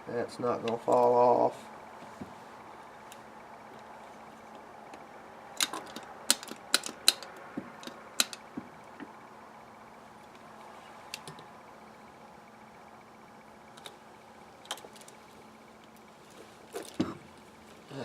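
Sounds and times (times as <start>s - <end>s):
faint steady hum: 0.0s - 18.0s
metal parts clicking: 5.6s - 8.4s.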